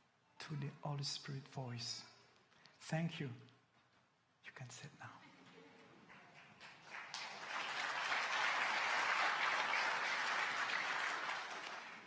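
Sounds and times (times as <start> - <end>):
congregation applauding: 5.8 - 12.0.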